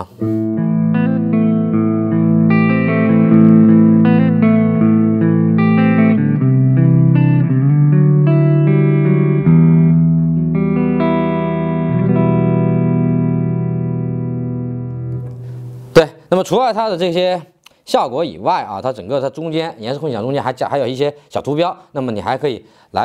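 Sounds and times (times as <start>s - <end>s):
electric guitar chords with reverb: 0.2s - 16.0s.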